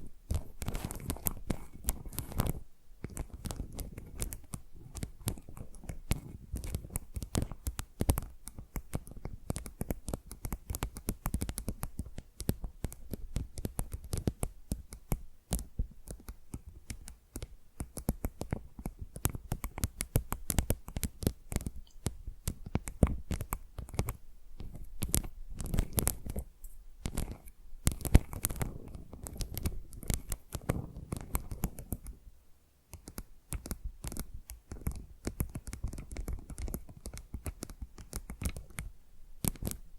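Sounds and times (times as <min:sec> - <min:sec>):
fingernails scratching and tapping tile: 0:15.5 - 0:32.2, 0:32.9 - 0:38.8.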